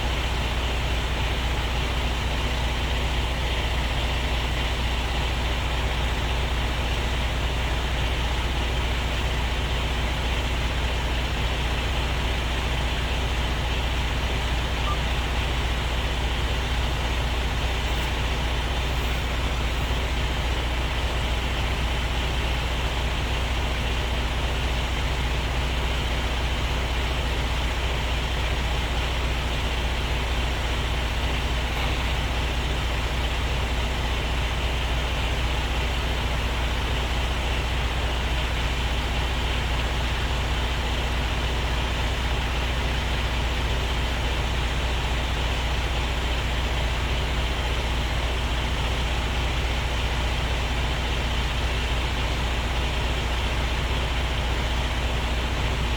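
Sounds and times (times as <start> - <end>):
truck diesel engine running: 0.0 - 55.9.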